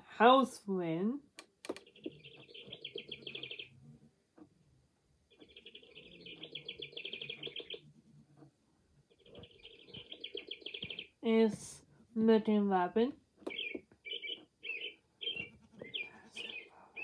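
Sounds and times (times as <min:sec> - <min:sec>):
recorded bird trilling from speaker: 0:01.8 - 0:03.8, 0:05.3 - 0:07.9, 0:09.1 - 0:11.3, 0:13.5 - 0:17.0.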